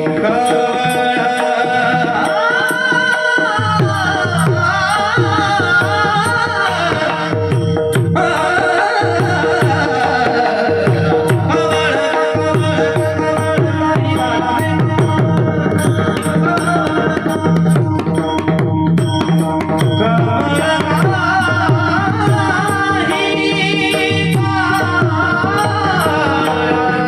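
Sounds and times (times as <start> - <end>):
barrel drum played fast: 0.0 - 27.0.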